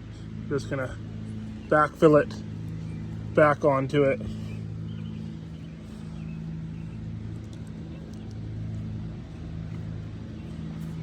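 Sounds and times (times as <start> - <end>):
low motor hum: 0.0 - 11.0
faint ticks and scrapes: 7.2 - 11.0.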